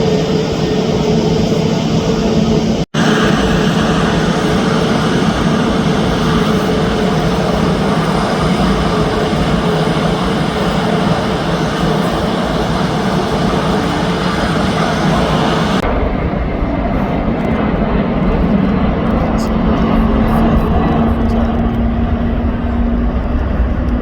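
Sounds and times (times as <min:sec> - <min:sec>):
jet engines at high power: 0:00.0 - 0:24.0.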